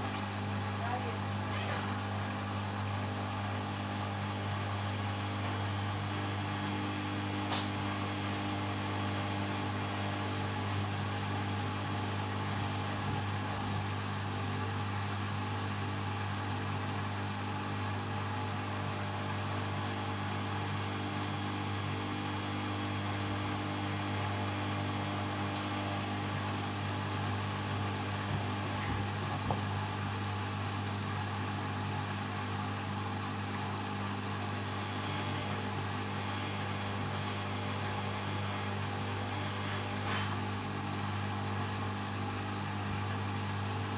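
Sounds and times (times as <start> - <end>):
washing machine humming: 0.0 - 43.9.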